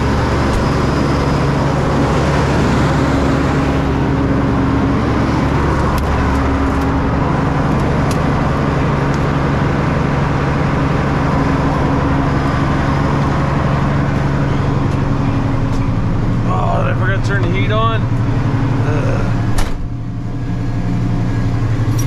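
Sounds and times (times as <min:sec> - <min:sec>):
road and tyre noise: 0:00.0 - 0:22.0
vehicle engine drone: 0:00.0 - 0:22.0.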